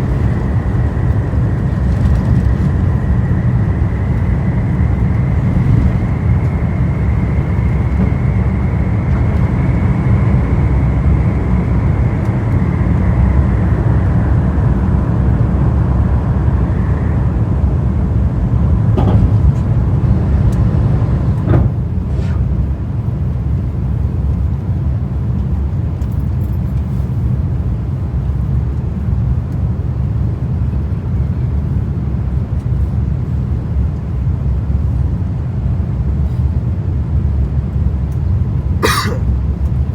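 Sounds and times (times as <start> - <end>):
jet engines roaring: 0.0 - 24.1
high fan whine: 0.0 - 39.9.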